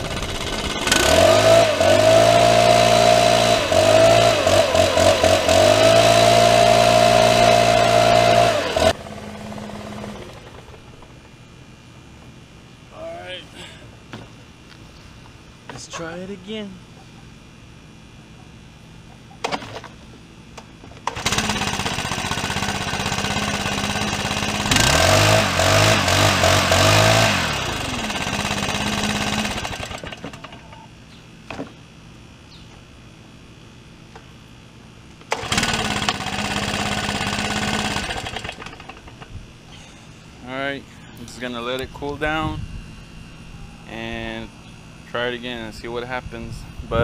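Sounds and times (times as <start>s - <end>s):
leaf blower engine starting and revving: 0.0s - 11.3s, 21.0s - 30.7s, 35.2s - 40.2s.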